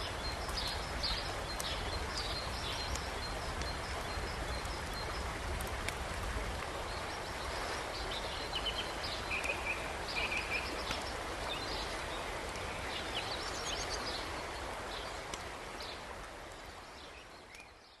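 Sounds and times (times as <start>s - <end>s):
small birds chirping: 0.0s - 5.9s
campfire crackling with pops: 0.0s - 6.8s, 15.2s - 15.6s
river rushing: 0.0s - 17.3s.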